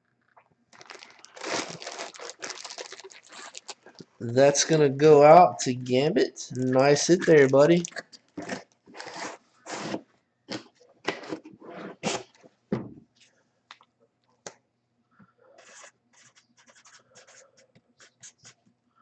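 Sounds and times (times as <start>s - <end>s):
packaging rustling and scraping: 0.8s - 4.7s, 7.1s - 10.0s, 11.0s - 12.4s.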